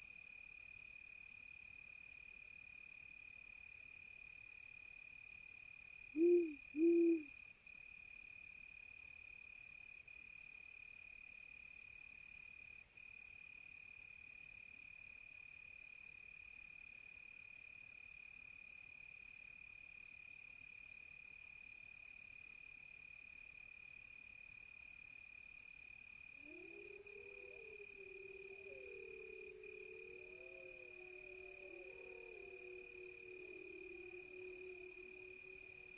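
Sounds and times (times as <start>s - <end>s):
crickets chirping: 6.0s - 7.3s, 26.1s - 35.9s
wolves howling: 26.4s - 35.9s.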